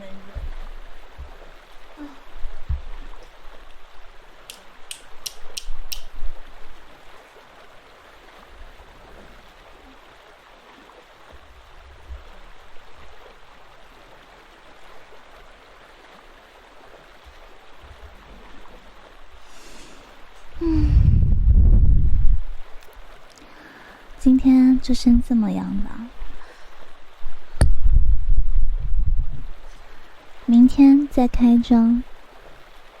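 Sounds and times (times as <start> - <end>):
soft low thumps: 0.0 - 4.0, 11.4 - 12.6, 20.4 - 22.6, 27.2 - 29.8
rain patter: 0.0 - 33.0
quick sharp clicks: 4.5 - 6.2.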